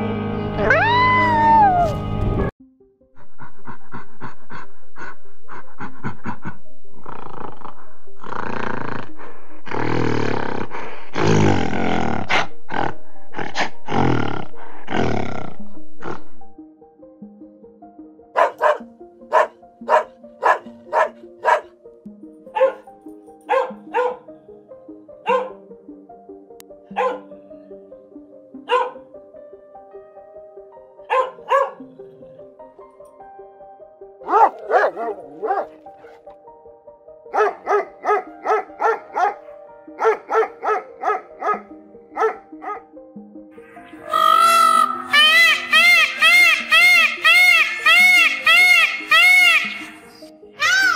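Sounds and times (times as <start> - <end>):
gentle background music: 0.0 - 50.9
dog barking: 18.4 - 21.7, 22.5 - 22.8, 23.4 - 24.3, 25.2 - 25.6, 26.9 - 27.3, 28.7 - 29.1, 31.0 - 31.9, 34.2 - 36.2, 37.3 - 42.9.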